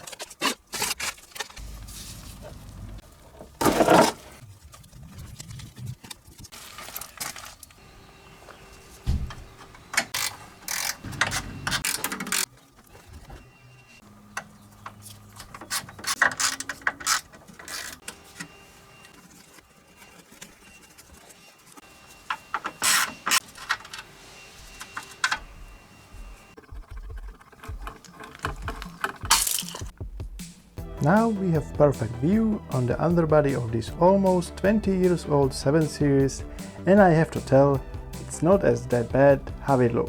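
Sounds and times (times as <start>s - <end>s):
hand tools and metal parts clicking: 9.4s - 30.0s.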